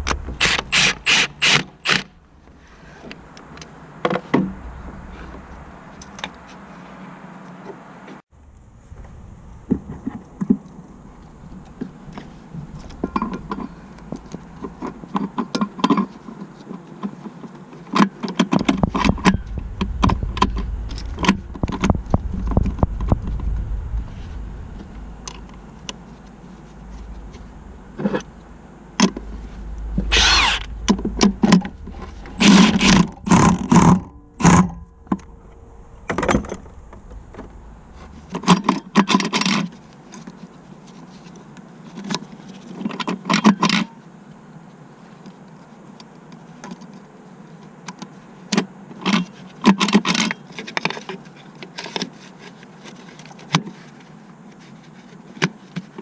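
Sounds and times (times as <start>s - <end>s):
low rumble: 0.0s - 1.0s, 2.1s - 7.4s, 8.3s - 15.2s, 18.6s - 39.0s.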